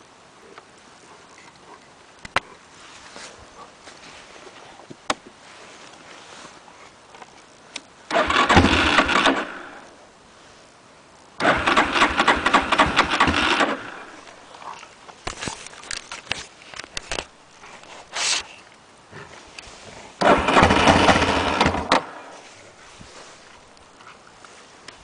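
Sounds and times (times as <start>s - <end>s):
engine cranking: 8.1s - 9.6s, 11.4s - 14.0s, 20.2s - 22.2s.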